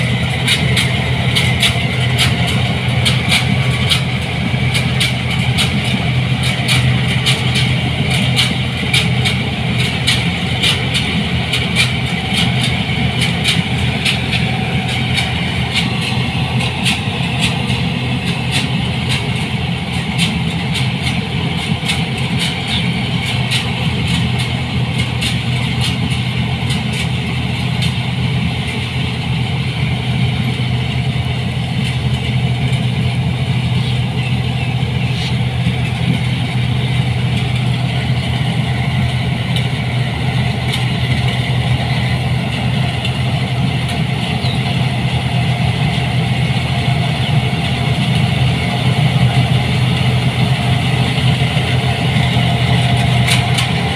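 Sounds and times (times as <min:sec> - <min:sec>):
combine harvester engine hum: 0:00.0 - 0:53.9.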